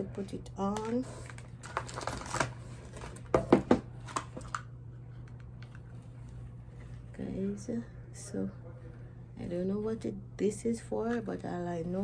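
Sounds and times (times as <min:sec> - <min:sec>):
packaging rustle: 0:00.8 - 0:03.4.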